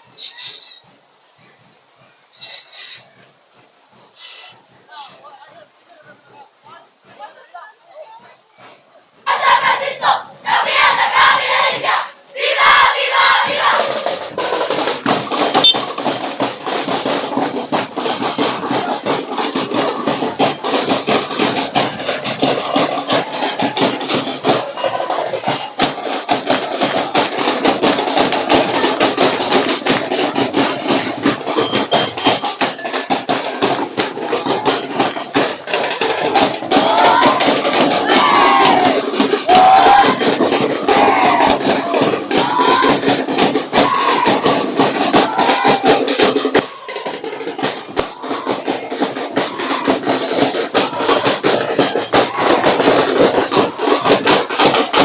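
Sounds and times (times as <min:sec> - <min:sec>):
crowd voices: 0:04.6 - 0:55.0
percussion band drumming: 0:08.6 - 0:55.0
crowd shouting: 0:09.2 - 0:15.9, 0:35.8 - 0:55.0.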